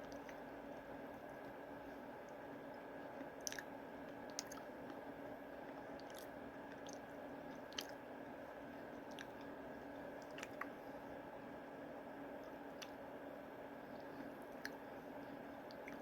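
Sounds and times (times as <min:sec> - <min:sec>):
faint hum: 0:00.0 - 0:16.0
person chewing: 0:03.4 - 0:04.7, 0:06.0 - 0:08.0.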